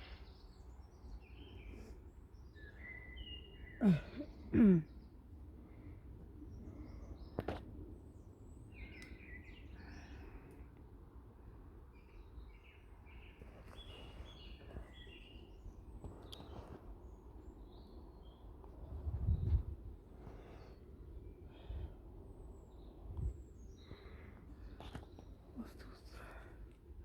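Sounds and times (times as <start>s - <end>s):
birds chirping: 0.0s - 5.2s, 11.9s - 18.5s, 20.3s - 26.6s.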